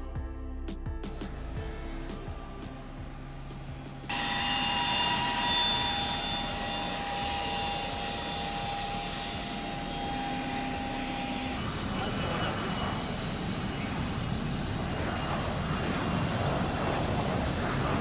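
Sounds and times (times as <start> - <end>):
faint music: 0.0 - 4.4
high whines: 1.1 - 17.1
propeller plane engine: 11.6 - 18.0.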